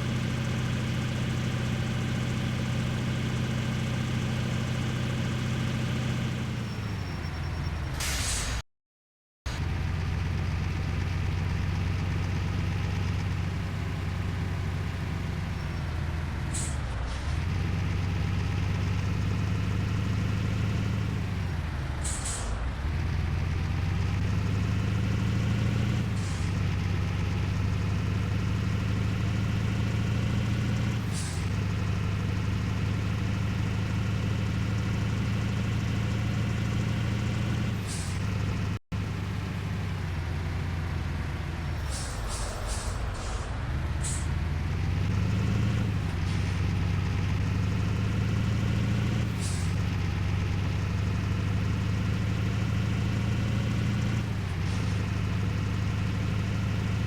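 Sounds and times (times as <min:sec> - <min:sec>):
vehicle engine running: 0:00.0 - 0:08.1, 0:09.5 - 0:57.0
short hiss: 0:41.8 - 0:44.3.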